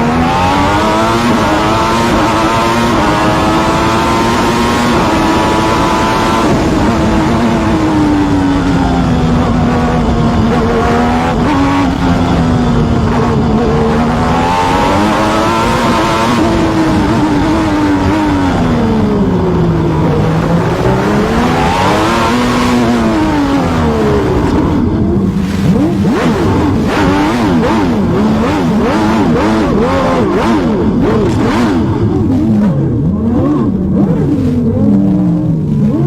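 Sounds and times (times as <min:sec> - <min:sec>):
racing car engine revving: 0:00.0 - 0:36.0.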